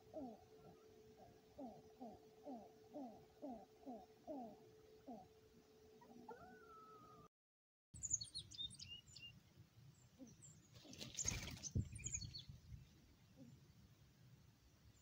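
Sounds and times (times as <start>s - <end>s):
small birds chirping: 0.0s - 5.3s, 8.0s - 13.9s.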